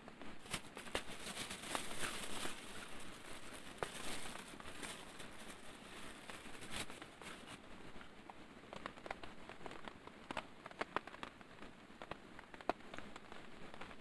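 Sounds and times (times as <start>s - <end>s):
rain pattering: 0.0s - 14.0s
sharp taps of raindrops: 3.7s - 14.0s.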